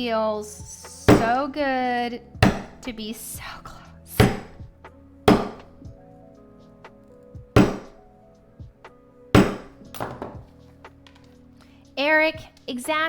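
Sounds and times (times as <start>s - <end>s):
soft background music: 0.0s - 13.0s
hard sharp knocks: 2.4s - 2.8s, 4.2s - 4.6s, 5.3s - 5.7s, 7.6s - 8.0s, 9.4s - 10.4s.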